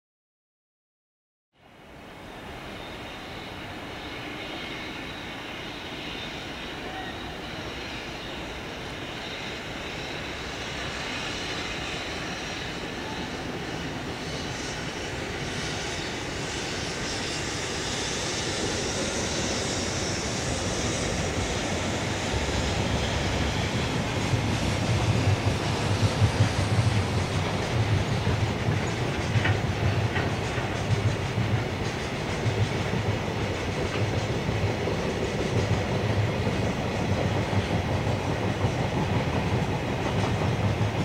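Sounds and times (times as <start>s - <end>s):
freight train rumble and hiss: 1.6s - 41.0s
train wheels clacking over rail joints: 14.1s - 41.0s.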